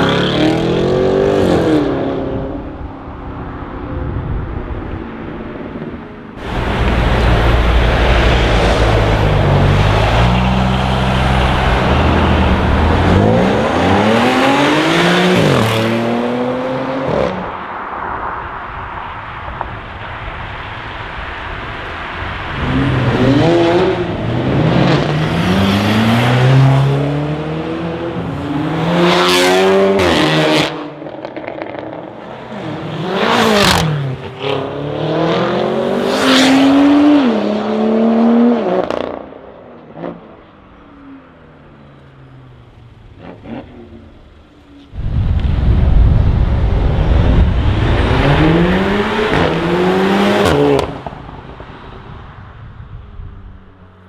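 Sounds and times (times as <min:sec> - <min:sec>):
cars accelerating hard: 0:06.4 - 0:17.8, 0:21.8 - 0:40.3, 0:46.4 - 0:51.7.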